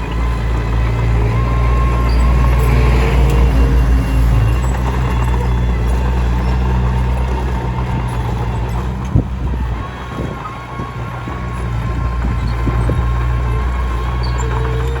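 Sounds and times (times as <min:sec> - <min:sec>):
bulldozer diesel engine droning: 0:00.0 - 0:15.0
faint squeal: 0:09.5 - 0:15.0.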